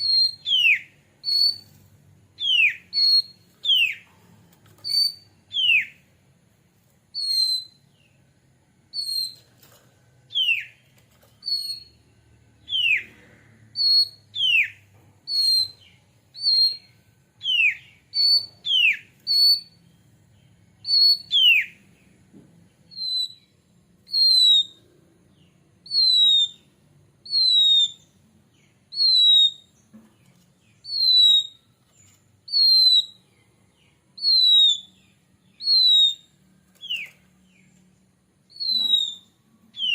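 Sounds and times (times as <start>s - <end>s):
bird whistling: 0.0s - 1.8s, 2.4s - 4.0s, 4.8s - 6.1s, 7.1s - 8.0s, 8.9s - 9.5s, 10.3s - 10.8s, 11.4s - 12.0s, 12.6s - 19.8s, 20.8s - 21.8s, 22.9s - 24.9s, 25.8s - 29.8s, 30.8s - 33.3s, 34.2s - 37.2s, 38.4s - 39.9s.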